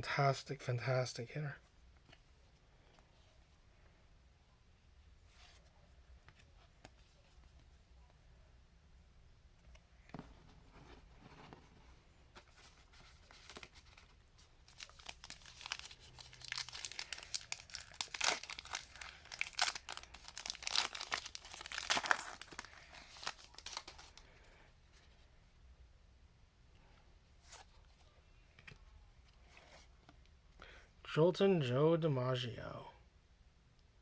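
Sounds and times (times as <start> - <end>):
foil wrapper tearing and crinkling: 14.7 - 24.2.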